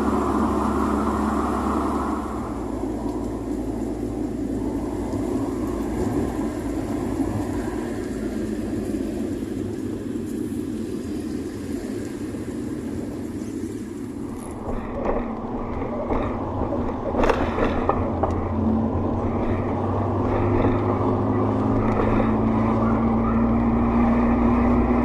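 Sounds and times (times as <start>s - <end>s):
car engine running: 0.0s - 25.0s
engine knocks: 14.5s - 22.8s.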